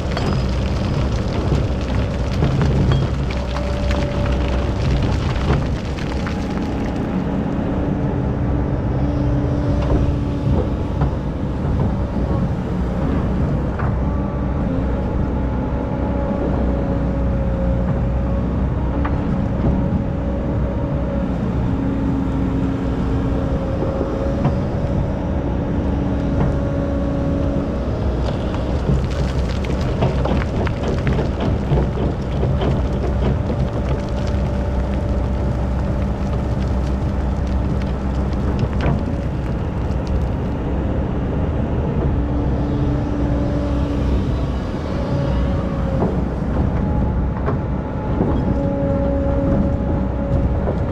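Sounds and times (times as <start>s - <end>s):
excavator diesel engine running: 0.0s - 8.3s, 21.4s - 50.9s.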